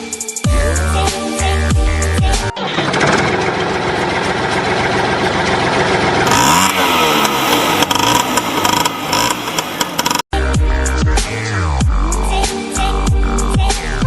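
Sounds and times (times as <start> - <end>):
electronic music: 0.0 - 14.0
engine revving: 2.5 - 10.3.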